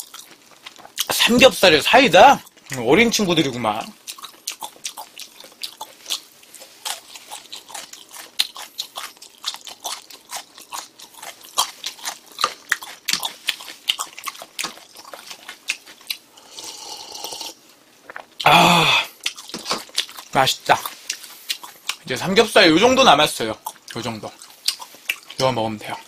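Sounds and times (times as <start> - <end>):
person chewing with mouth clicks: 4.0 - 22.1, 23.6 - 25.5.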